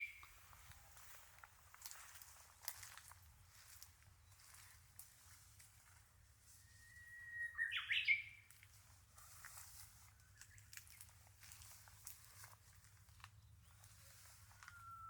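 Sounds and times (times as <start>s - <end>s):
bird singing: 0.0s - 0.6s, 4.2s - 4.8s, 6.4s - 8.6s, 13.0s - 15.0s
faint outdoor ambience: 0.0s - 15.0s.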